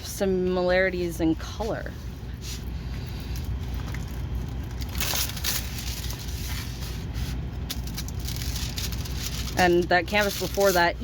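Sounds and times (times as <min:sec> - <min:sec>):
steady low hum: 0:00.0 - 0:11.0
packaging rustling and crackling: 0:03.4 - 0:11.0.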